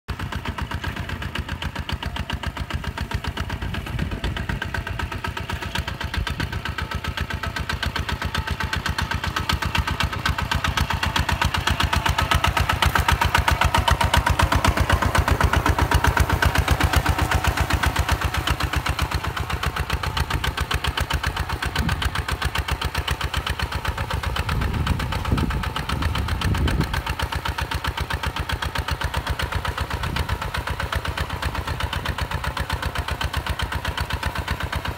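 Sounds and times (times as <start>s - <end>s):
tractor diesel engine chugging: 0.1s - 34.9s.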